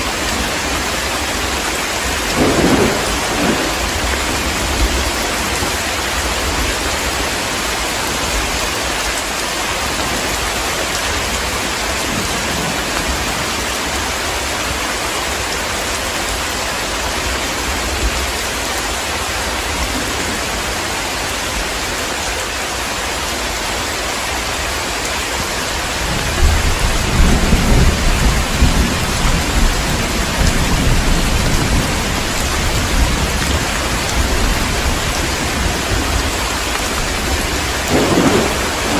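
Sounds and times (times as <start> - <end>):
heavy rain falling: 0.0 - 38.9
low rumble of thunder: 2.0 - 6.8, 25.9 - 38.9.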